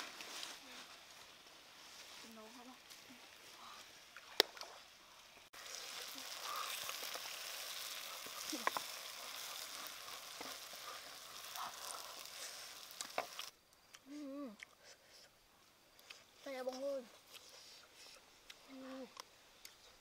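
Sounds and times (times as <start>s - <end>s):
food sizzling in a wok: 5.5s - 13.5s.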